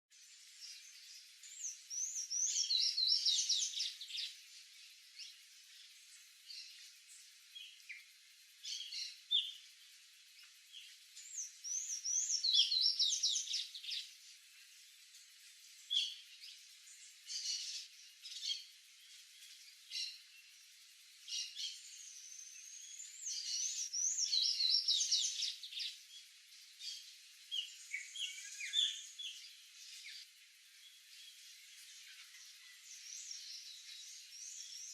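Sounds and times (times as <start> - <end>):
bird chirps: 0.1 - 9.8, 10.4 - 14.2, 21.2 - 34.9.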